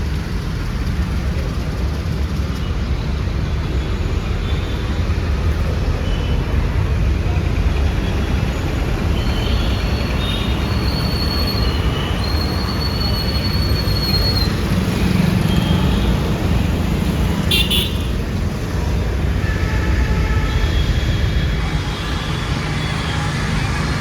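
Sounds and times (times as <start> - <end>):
traffic engines rumbling: 0.0 - 24.0
car horn toots: 17.5 - 18.1.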